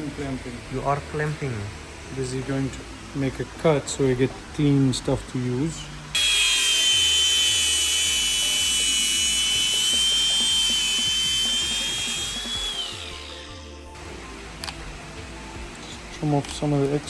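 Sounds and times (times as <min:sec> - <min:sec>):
cut-off tool cutting steel hose: 0:06.2 - 0:13.5.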